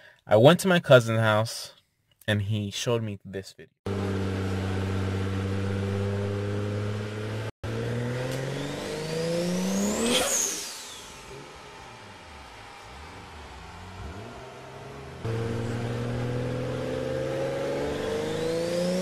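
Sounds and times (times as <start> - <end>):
car engine revving on a dyno: 3.9 - 19.0.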